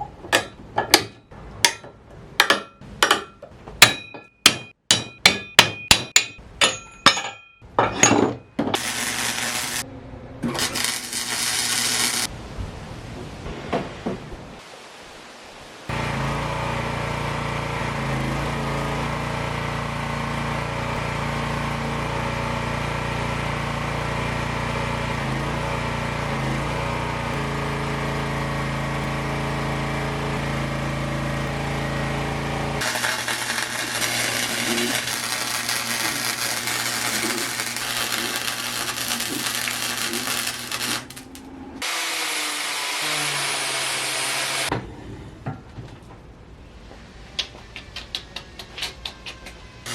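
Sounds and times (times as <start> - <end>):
crackling hiss of metalwork: 8.8 - 9.8, 10.5 - 12.3, 32.8 - 41.4
motor humming: 8.8 - 12.3, 15.9 - 45.2, 49.7 - 49.9.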